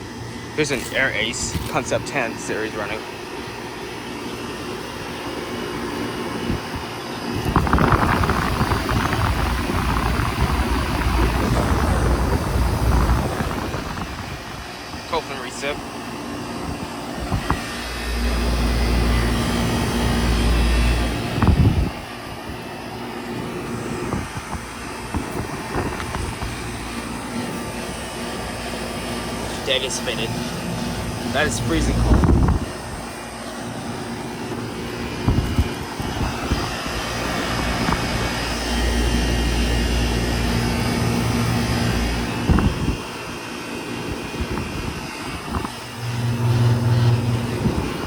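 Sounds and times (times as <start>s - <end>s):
air conditioner unit humming: 0.0s - 48.0s
rough rushing-air rumble: 7.4s - 15.8s, 16.5s - 22.6s, 23.2s - 43.2s, 44.3s - 48.0s.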